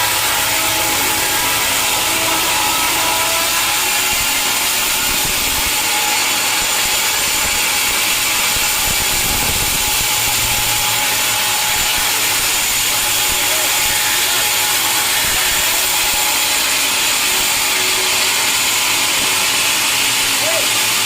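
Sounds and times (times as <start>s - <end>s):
machinery running: 0.0s - 21.0s
saw cutting through wood: 0.0s - 21.0s.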